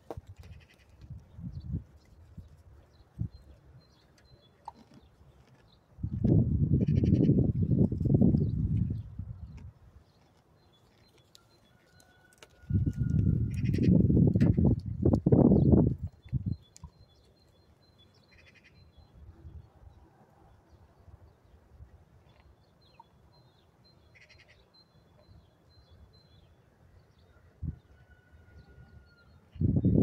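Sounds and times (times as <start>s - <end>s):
small birds chirping and trilling: 0.4s - 19.3s.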